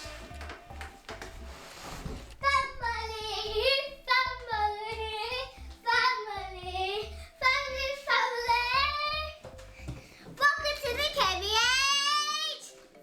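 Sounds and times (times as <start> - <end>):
backing track with low beat: 0.0 - 11.9
child singing a jingle: 2.4 - 9.4, 10.2 - 12.8.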